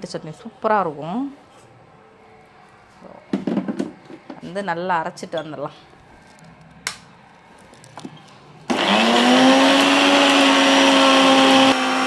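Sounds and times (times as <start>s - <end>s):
mixer grinder motor whine: 8.7s - 12.0s.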